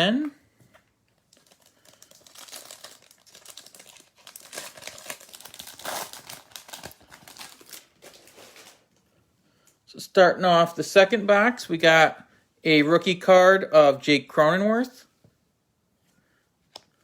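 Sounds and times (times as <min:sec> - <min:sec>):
foil wrapper crinkling: 0:01.2 - 0:09.0.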